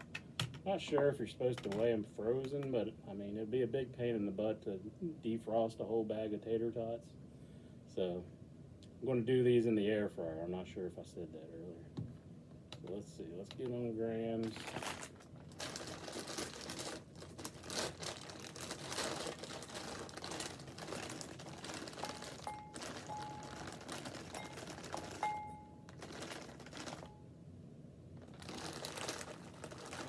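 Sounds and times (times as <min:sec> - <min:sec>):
plastic bag crinkling: 0:13.4 - 0:27.2, 0:28.1 - 0:30.0.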